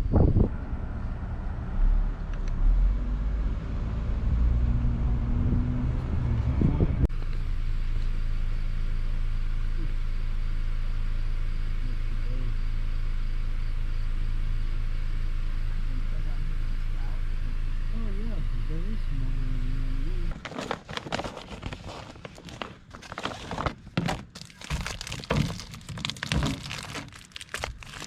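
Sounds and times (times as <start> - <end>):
motor vehicle running: 0.0 - 10.2, 23.1 - 28.0.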